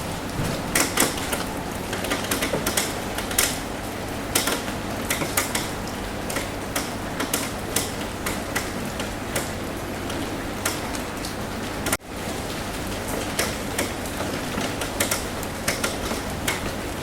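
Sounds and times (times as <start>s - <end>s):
rain on a roof: 0.0s - 17.0s.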